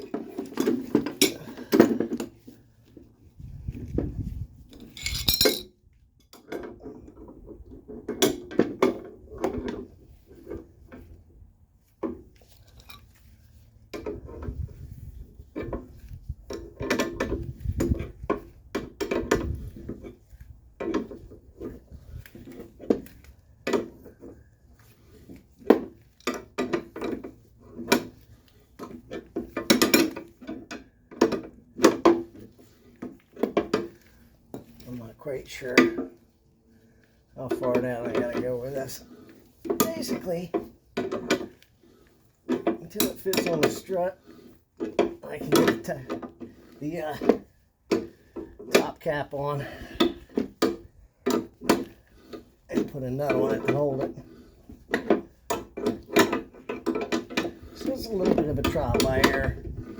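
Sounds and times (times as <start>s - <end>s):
metallic clinks of wrenches: 0.3s - 2.5s, 4.7s - 6.6s
metal tools knocking together: 0.6s - 2.2s, 4.8s - 5.7s.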